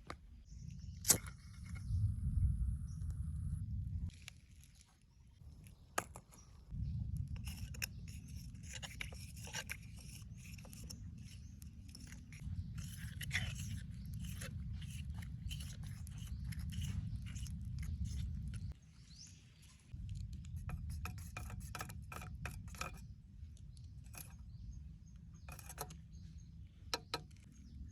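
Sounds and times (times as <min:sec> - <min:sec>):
steady low rumble: 0:01.5 - 0:04.1, 0:06.7 - 0:08.5
tool scraping and snipping: 0:07.4 - 0:18.7, 0:20.6 - 0:23.1, 0:25.4 - 0:26.0, 0:26.9 - 0:27.5.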